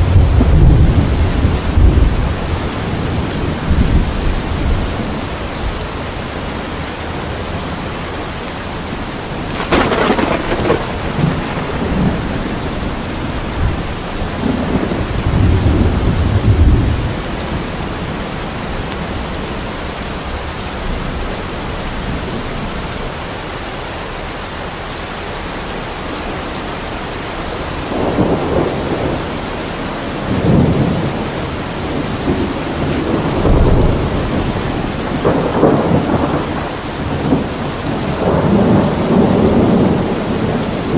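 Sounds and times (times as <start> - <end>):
thunder rumbling: 0.0 - 19.6, 27.8 - 40.9
heavy rain falling: 0.0 - 40.9
sharp thunder crack: 9.4 - 17.1.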